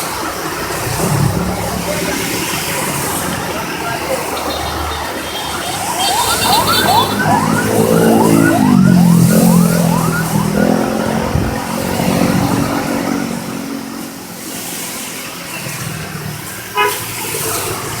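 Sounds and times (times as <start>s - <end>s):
siren yelping: 2.6s - 13.4s
low tone sliding downward: 3.3s - 13.5s.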